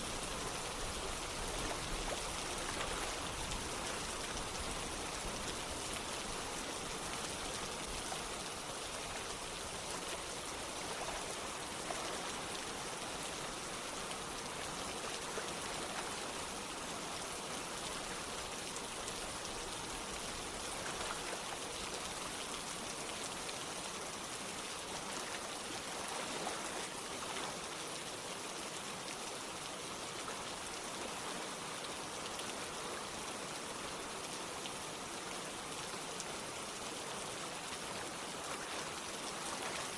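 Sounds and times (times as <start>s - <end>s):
rain pattering: 0.0s - 39.9s
running water: 0.0s - 39.9s.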